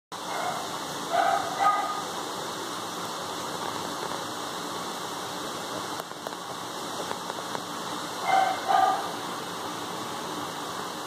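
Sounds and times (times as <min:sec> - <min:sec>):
rain on concrete and glass: 0:00.2 - 0:11.0
dog barking: 0:00.3 - 0:02.1, 0:08.2 - 0:09.2.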